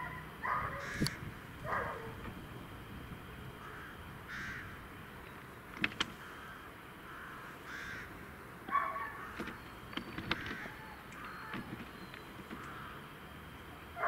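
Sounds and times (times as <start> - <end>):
birds cawing: 0.0 - 2.2, 3.5 - 5.1, 6.0 - 13.4
sharp clicks: 1.0 - 1.2, 5.2 - 6.2, 8.6 - 12.8.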